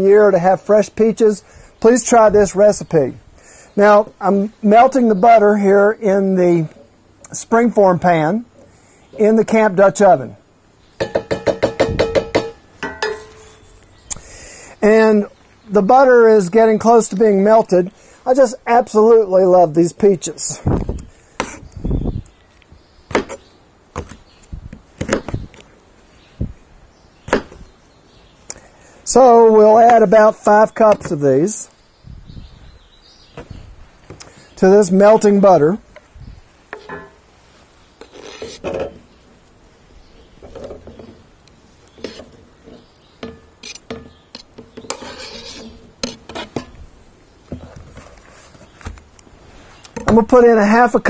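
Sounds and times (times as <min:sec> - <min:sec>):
utensils knocking and clicking: 0:11.0 - 0:13.4
clinks on metal pan: 0:11.0 - 0:13.5
rasping scrape on pan: 0:38.0 - 0:38.8, 0:42.0 - 0:42.9, 0:43.6 - 0:46.8.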